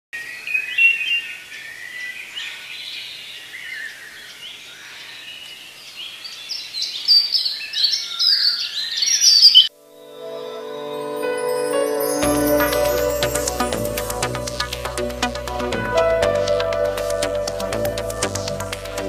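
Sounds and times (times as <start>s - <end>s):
birds chirping and singing: 0.3s - 9.7s.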